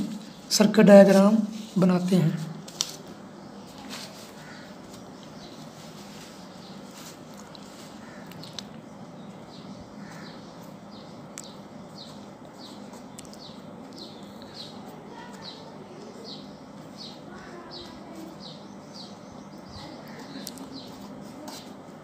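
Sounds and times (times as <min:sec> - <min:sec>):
steady low hum: 0:00.0 - 0:22.0
small bird chirping: 0:03.4 - 0:21.1.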